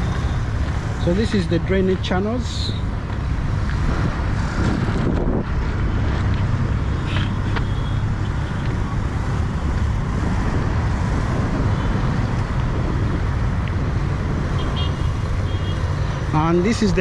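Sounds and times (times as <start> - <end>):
rumble of passing vehicles: 0.0 - 17.0
wind buffeting microphone: 2.8 - 15.4.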